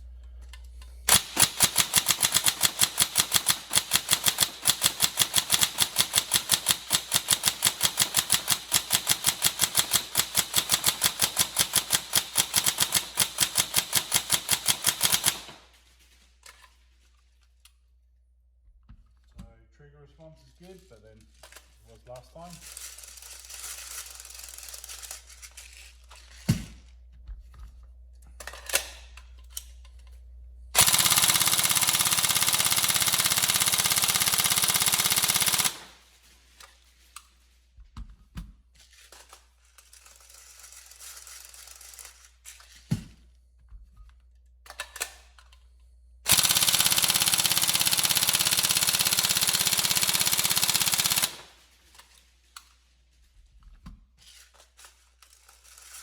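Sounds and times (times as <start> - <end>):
airsoft rifle full-auto bursts: 1.1 - 15.8, 30.8 - 36.2, 46.3 - 52.0.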